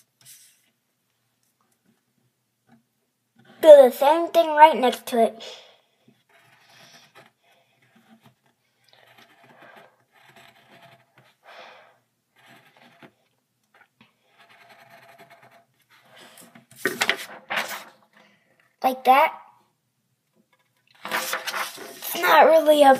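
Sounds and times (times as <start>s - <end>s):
drawing tool scratching paper: 6.1s - 11.4s, 12.3s - 13.3s, 14.2s - 17.8s.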